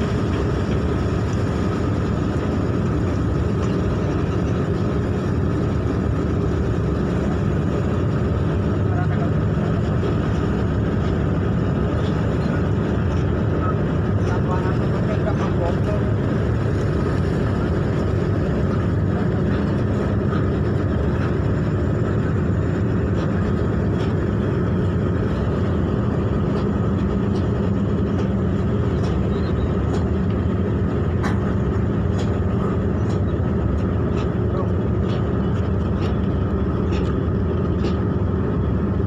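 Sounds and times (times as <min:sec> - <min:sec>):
ship engines rumbling: 0:00.0 - 0:39.0.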